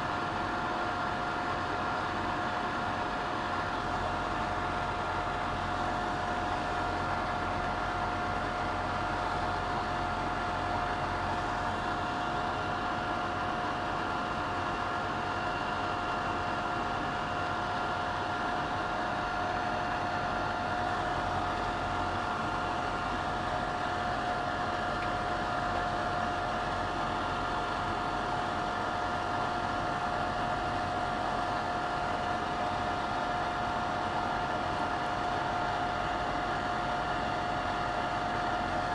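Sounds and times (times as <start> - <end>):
extraction fan running: 0.0 - 38.9.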